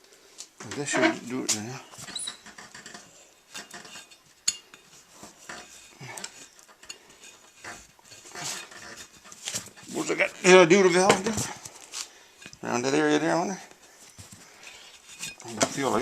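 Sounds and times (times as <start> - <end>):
tools clicking and clinking: 2.1 - 9.8.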